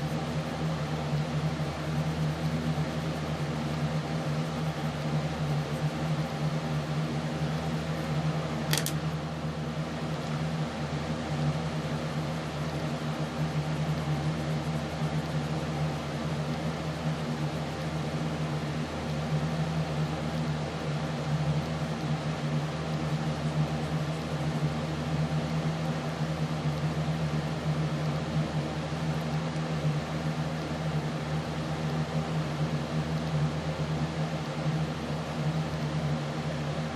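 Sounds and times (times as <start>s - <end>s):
machine hum: 0.0s - 36.9s
sharp click: 8.7s - 9.0s.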